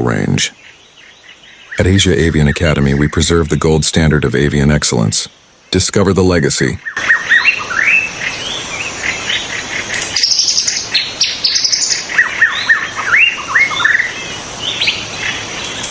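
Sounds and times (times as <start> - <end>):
bird singing rising whistled notes: 6.8 - 15.9.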